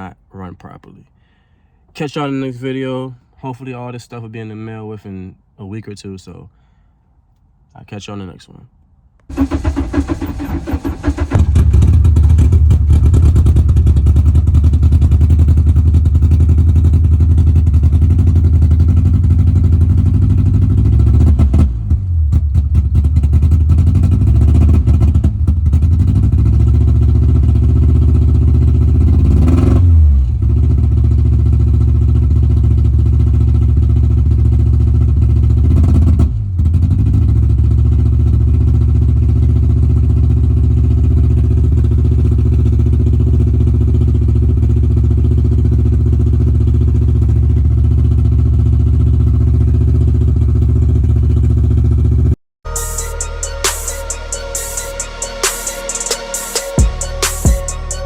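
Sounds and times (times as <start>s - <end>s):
engine running and stumbling: 9.3s - 54.4s.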